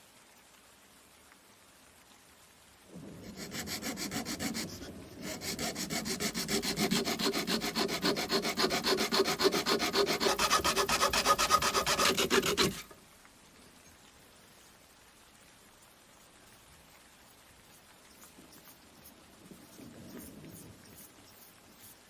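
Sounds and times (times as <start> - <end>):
abrasive rubbing strokes on knife: 3.2 - 12.9.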